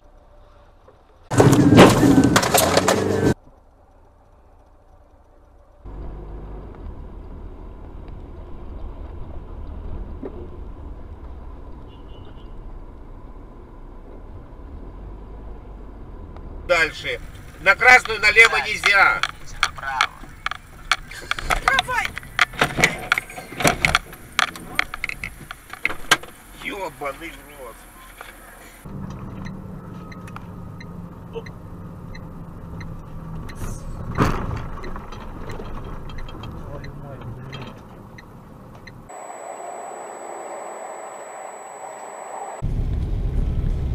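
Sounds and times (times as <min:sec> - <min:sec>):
car engine and road noise: 0:00.0 - 0:43.9
faint ticks: 0:03.4 - 0:06.0.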